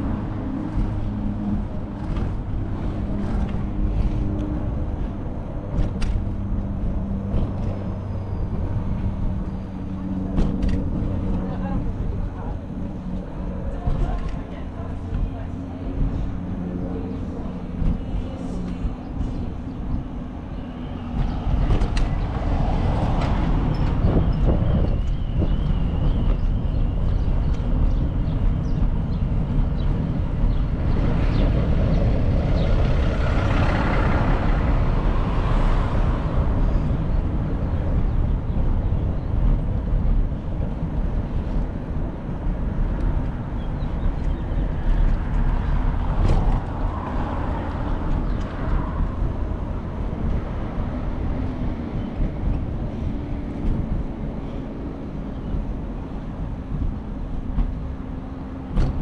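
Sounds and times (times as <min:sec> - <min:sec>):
street traffic: 0:00.0 - 0:59.0
wind rumble on microphone: 0:00.0 - 0:59.0
vehicle passing: 0:30.9 - 0:38.4, 0:42.3 - 0:59.0.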